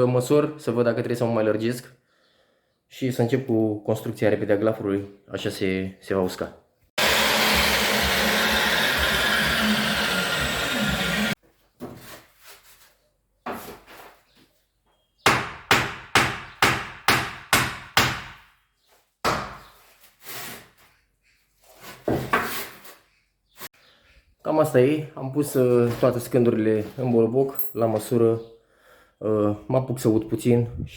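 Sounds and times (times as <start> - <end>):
power tool motor: 7.0 - 11.4.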